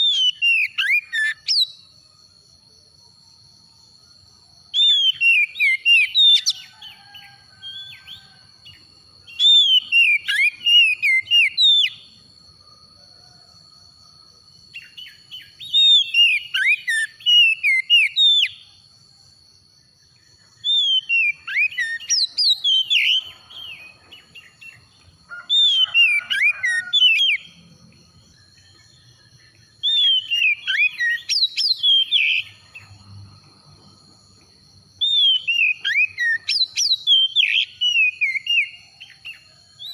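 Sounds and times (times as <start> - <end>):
bird singing: 0.0 - 2.2, 3.6 - 39.9.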